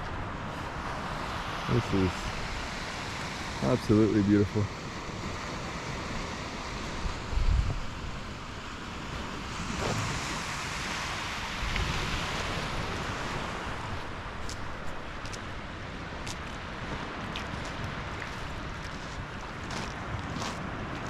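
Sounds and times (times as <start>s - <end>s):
lake waves washing on shore: 0.0s - 21.0s
wind buffeting microphone: 4.5s - 21.0s.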